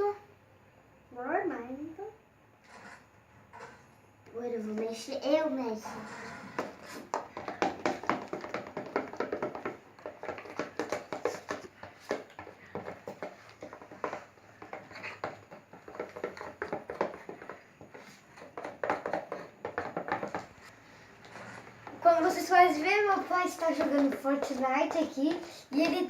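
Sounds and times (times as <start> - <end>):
slime being stirred squishing: 6.0 - 26.0.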